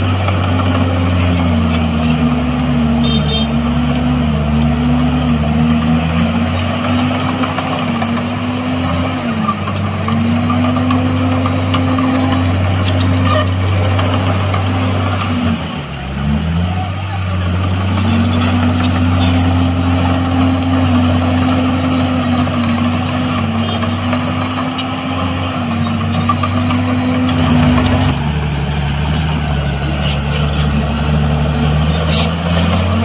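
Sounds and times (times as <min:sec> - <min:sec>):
heavy diesel engine under load: 0:00.0 - 0:33.0.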